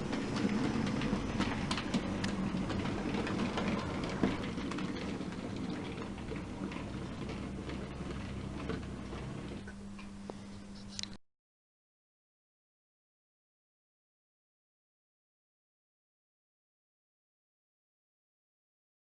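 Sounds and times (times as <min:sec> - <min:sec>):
train low hum: 0:00.0 - 0:09.7
train wheels clicking over rail joints: 0:00.0 - 0:09.7.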